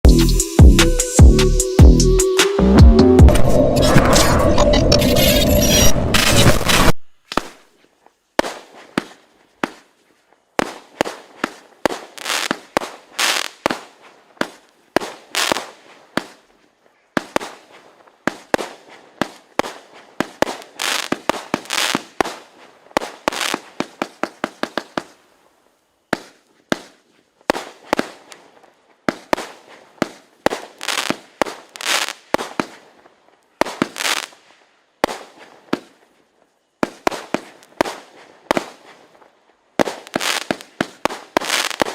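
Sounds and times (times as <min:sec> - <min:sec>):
firework barrage shots: 0:03.2 - 0:07.6, 0:08.4 - 0:09.9, 0:10.6 - 0:16.5, 0:17.2 - 0:25.2, 0:26.1 - 0:28.4, 0:29.0 - 0:32.9, 0:33.6 - 0:34.4, 0:35.0 - 0:36.0, 0:36.8 - 0:39.2, 0:39.8 - 0:41.9.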